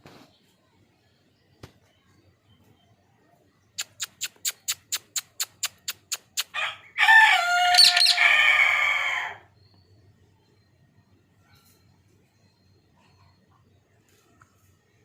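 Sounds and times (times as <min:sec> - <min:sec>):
parrot chirping and screeching: 0:03.8 - 0:09.4.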